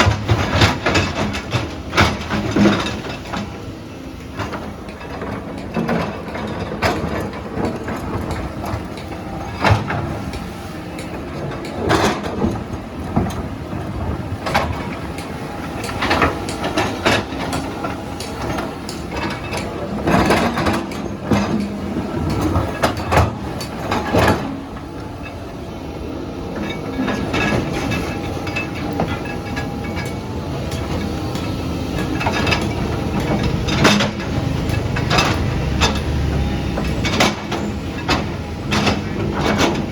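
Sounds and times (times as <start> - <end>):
heavy machine engine running: 0.0 - 39.9
metallic clanks and knocks: 26.6 - 39.9.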